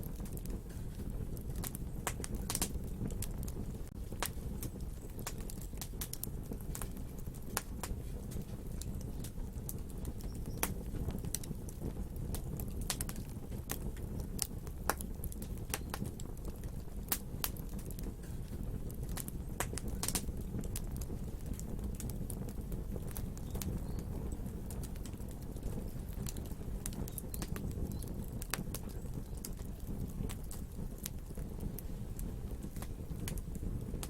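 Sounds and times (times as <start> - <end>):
fire crackling and popping: 0.0 - 34.0
low roar of flame: 0.0 - 34.0.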